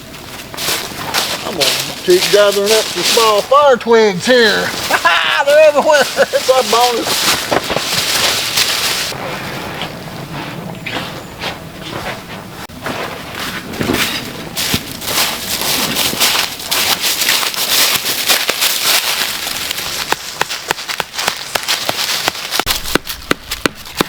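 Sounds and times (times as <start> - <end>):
dry twigs crackling and snapping: 0.3 - 3.4, 4.7 - 9.2, 14.1 - 24.0.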